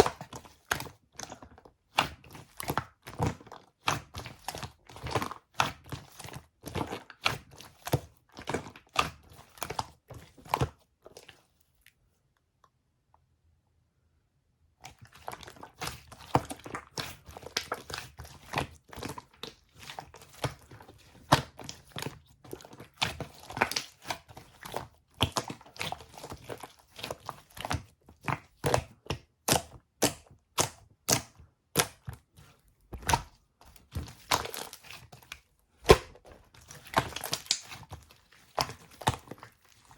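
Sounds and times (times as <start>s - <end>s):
crinkling: 32.1s - 39.9s.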